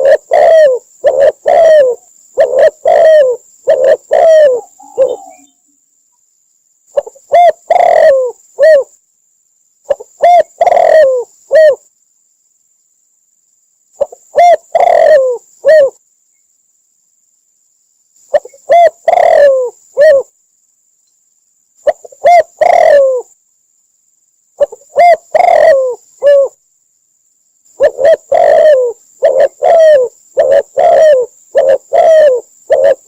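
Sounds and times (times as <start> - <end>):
dove cooing: 0.0 - 5.6, 6.9 - 9.0, 9.9 - 11.9, 14.0 - 16.0, 18.3 - 20.3, 21.8 - 23.3, 24.6 - 26.6, 27.8 - 33.0.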